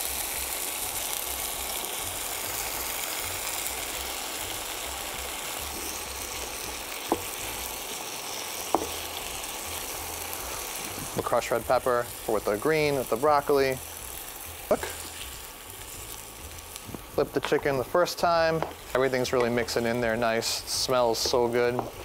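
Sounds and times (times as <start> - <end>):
food sizzling in a frying pan: 0.0 - 22.0
wooden spoon knocking on pan: 7.1 - 7.3, 8.7 - 9.0, 18.6 - 18.8.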